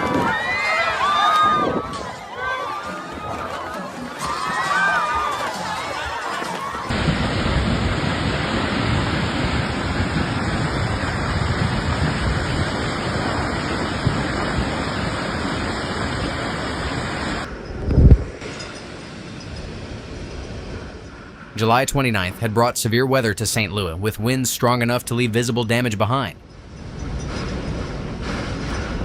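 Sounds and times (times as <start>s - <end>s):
storm wind rushing: 0.0s - 3.8s, 6.8s - 22.8s, 26.4s - 29.0s.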